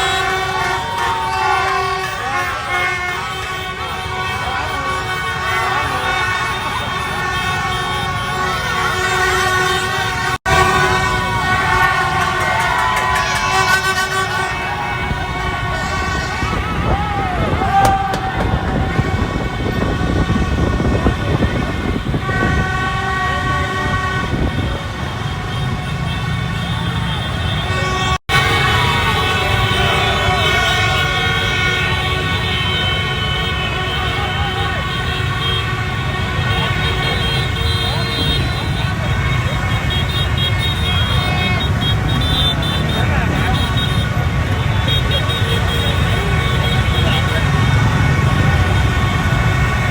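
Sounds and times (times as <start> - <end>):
people shouting: 0.0 - 2.8, 10.7 - 21.5
crowd noise: 0.0 - 49.9
horns tooting: 0.0 - 49.9
motorbike engines: 0.0 - 49.9.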